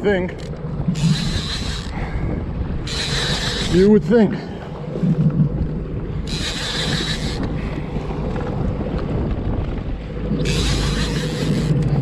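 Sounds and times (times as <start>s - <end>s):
boat rumble: 0.0s - 12.0s
wind on microphone: 0.0s - 12.0s
fishing reel drag buzzing: 0.4s - 2.1s, 2.8s - 3.9s, 6.2s - 7.6s, 10.4s - 12.0s.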